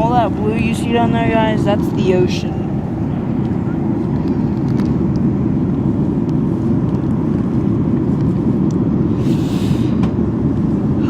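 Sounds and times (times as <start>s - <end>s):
airliner cabin rumble: 0.0s - 11.0s
brief hiss: 9.2s - 10.1s.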